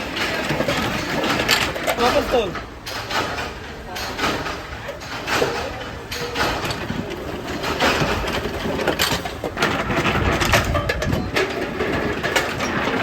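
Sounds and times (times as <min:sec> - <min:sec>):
low machinery rumble: 0:00.0 - 0:13.0
machinery clanking: 0:00.0 - 0:13.0.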